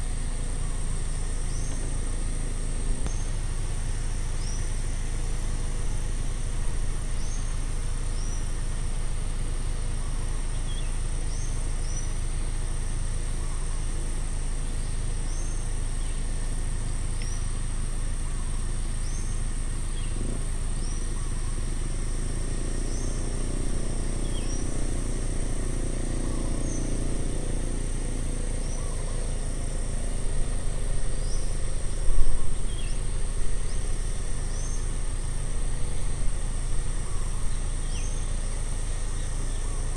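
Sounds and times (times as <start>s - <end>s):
insect drone: 0.0s - 39.9s
bird calling: 20.0s - 39.9s.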